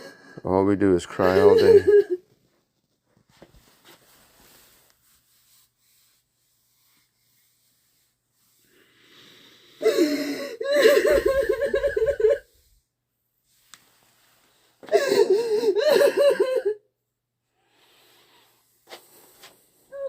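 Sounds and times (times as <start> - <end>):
woman sobbing: 1.2 - 2.2, 9.8 - 12.4, 14.9 - 16.8
gasping breaths: 8.6 - 11.3.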